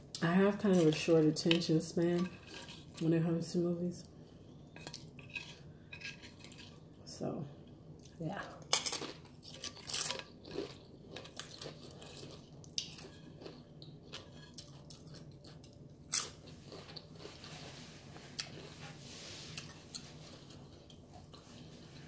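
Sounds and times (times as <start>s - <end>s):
soft chewing: 0.1s - 3.1s, 4.0s - 7.0s, 7.6s - 22.0s
tortilla chips crunching: 2.3s - 3.0s, 8.6s - 17.7s.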